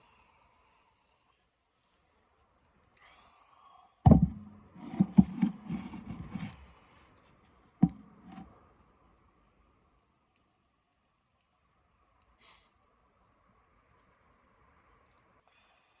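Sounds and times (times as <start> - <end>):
hard knocks and thumps: 4.1 - 6.5, 7.8 - 8.4.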